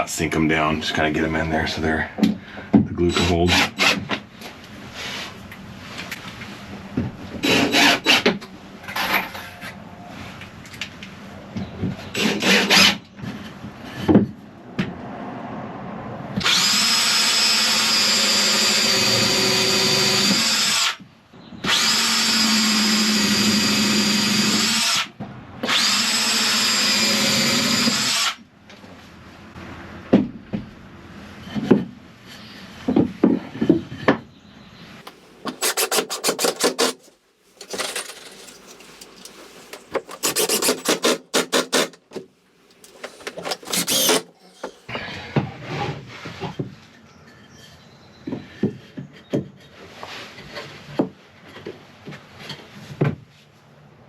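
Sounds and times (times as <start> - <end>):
power drill driving screws into wood: 12.2 - 13.0, 16.4 - 21.0, 21.6 - 28.4, 35.5 - 38.8, 39.8 - 42.2, 42.8 - 44.8.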